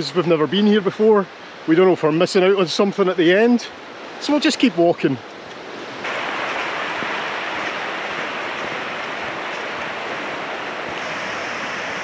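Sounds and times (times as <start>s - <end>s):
river water flowing over rocks: 0.0s - 12.0s.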